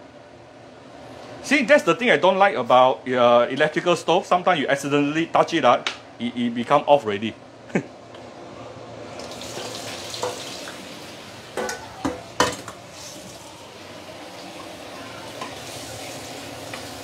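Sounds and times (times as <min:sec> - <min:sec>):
prawns sizzling in a wok: 0:09.2 - 0:17.0.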